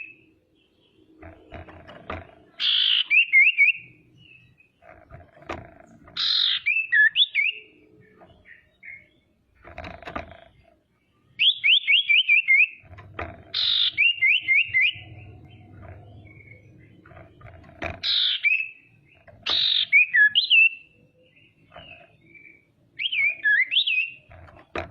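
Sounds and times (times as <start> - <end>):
bird harsh rasp call: 6.2 - 7.6, 13.5 - 15.0, 19.4 - 20.7.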